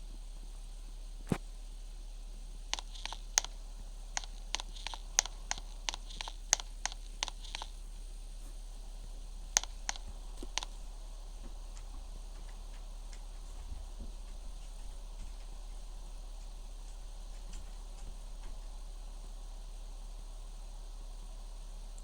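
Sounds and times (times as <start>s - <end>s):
steady low hum: 0.0s - 22.0s
light sharp clicks: 2.7s - 7.8s, 8.5s - 18.8s.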